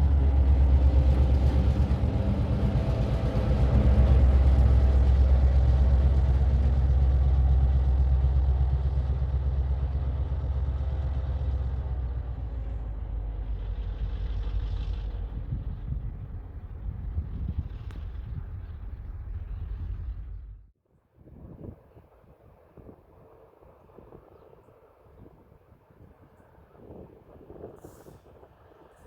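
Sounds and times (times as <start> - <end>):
train rumbling: 0.0 - 20.8.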